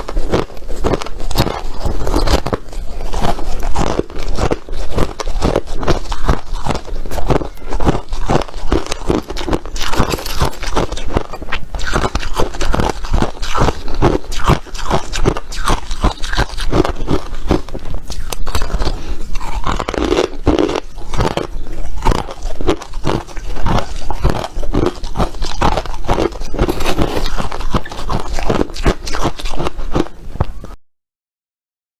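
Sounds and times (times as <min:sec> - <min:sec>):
ice being chewed: 0:00.0 - 0:30.8.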